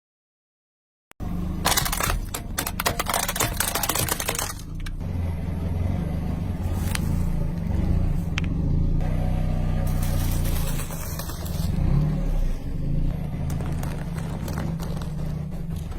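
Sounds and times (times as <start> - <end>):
car engine running: 1.2 - 15.9
tyres crushing crunchy material: 1.6 - 5.0, 6.4 - 8.4, 9.8 - 15.9.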